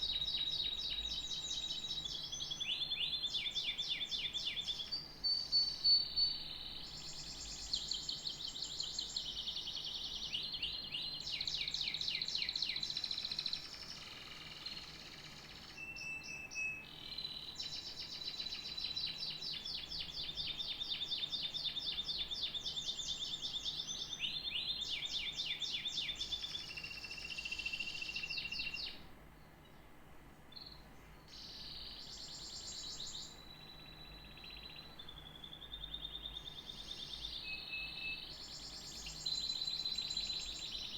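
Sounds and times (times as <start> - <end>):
canary singing: 0.0 - 29.0, 30.6 - 40.9.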